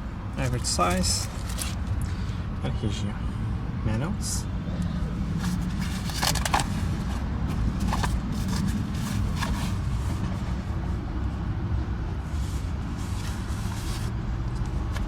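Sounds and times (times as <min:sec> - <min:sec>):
paper rustling and clicks: 0:00.9 - 0:01.8, 0:05.4 - 0:10.2.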